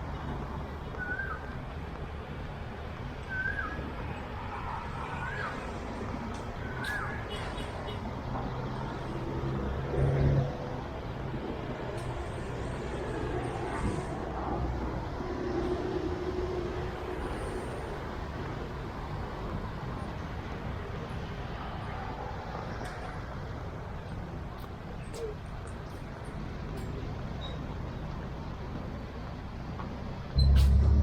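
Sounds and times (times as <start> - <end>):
vehicles passing on busy road: 0.0 - 31.0
engine hum: 22.2 - 31.0.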